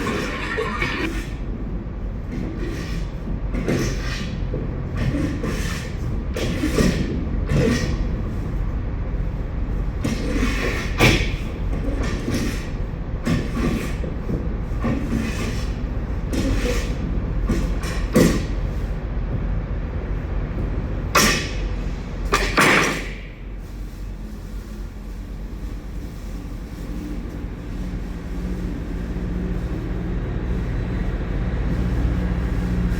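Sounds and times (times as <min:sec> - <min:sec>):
steady low rumble: 0:00.0 - 0:32.9
scrapes and knocks on metal floor: 0:10.0 - 0:19.4.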